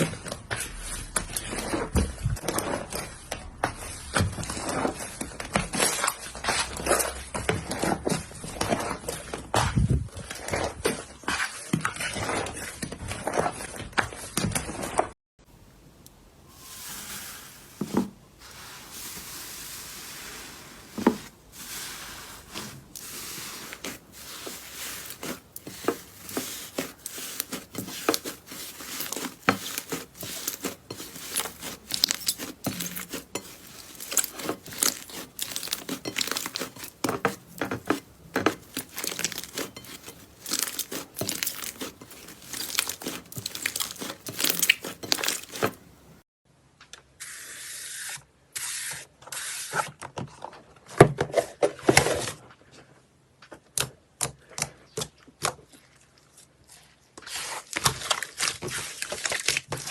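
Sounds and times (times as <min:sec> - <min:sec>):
slime stretching hiss: 0:16.5 - 0:33.4.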